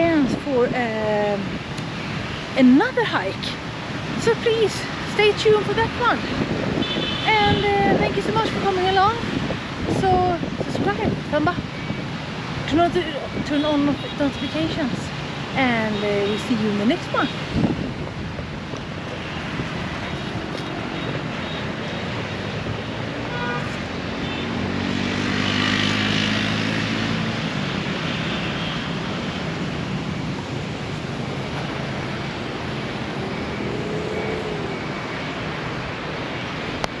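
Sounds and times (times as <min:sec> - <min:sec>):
traffic hum: 0:00.0 - 0:37.0.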